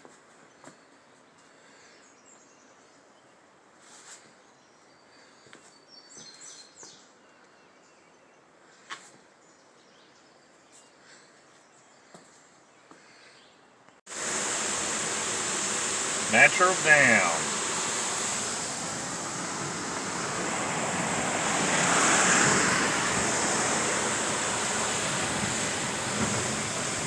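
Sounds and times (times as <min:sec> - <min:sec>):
waterfall rushing: 0:14.1 - 0:27.0.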